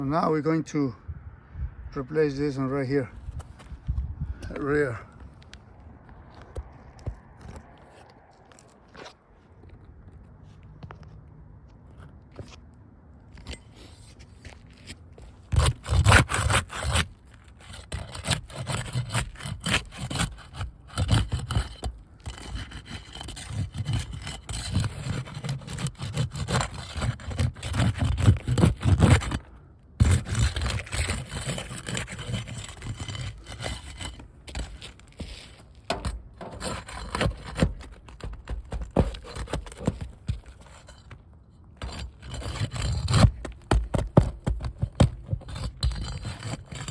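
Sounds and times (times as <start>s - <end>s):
scraping and rubbing: 3.2s - 11.1s, 13.3s - 46.9s.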